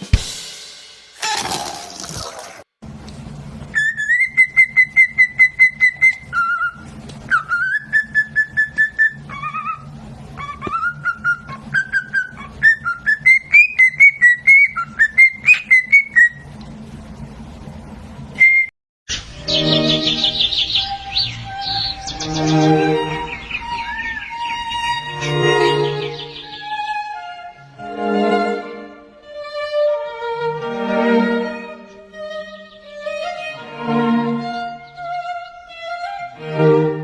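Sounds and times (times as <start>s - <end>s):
bird whistling a tune: 3.7s - 16.4s, 18.4s - 24.7s.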